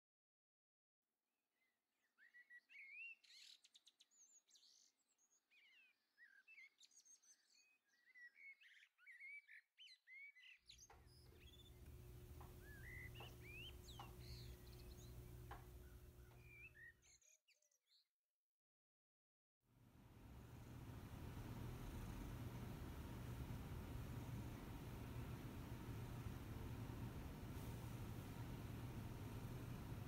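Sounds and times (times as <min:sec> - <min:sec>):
birdsong chirps and whistles: 0:01.6 - 0:18.0, 0:20.3 - 0:30.0
low hum with hiss: 0:11.0 - 0:16.6, 0:19.8 - 0:30.0.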